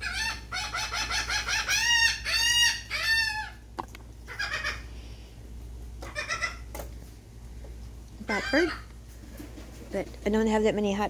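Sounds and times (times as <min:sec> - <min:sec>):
seagull calling: 0:00.0 - 0:03.6, 0:04.3 - 0:04.9, 0:06.0 - 0:06.7, 0:08.2 - 0:08.9.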